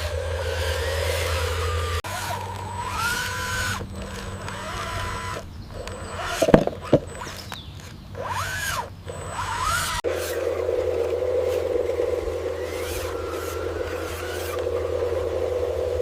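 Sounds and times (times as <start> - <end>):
small electric motor whirring: 0.0 - 16.0
sharp knocks: 6.4 - 7.1.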